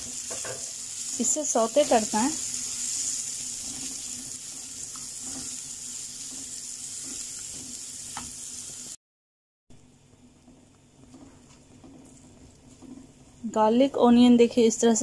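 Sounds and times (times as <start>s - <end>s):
onion sizzling in hot oil: 0.0s - 9.0s
spatula tapping and scraping: 2.9s - 8.4s, 10.4s - 13.4s.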